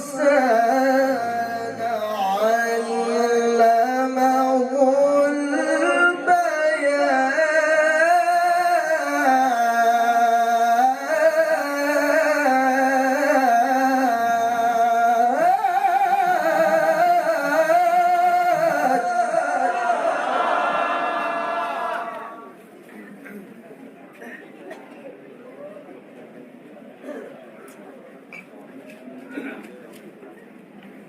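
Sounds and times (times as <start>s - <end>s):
man reciting melodically: 0.0s - 20.5s.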